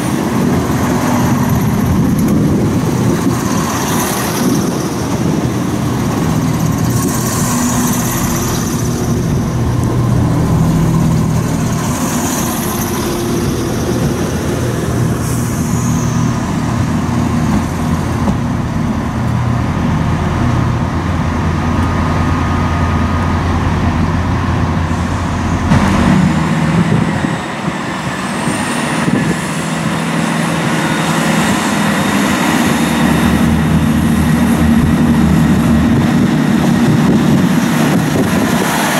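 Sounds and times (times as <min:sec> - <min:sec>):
diesel train engines humming: 0:00.0 - 0:38.9.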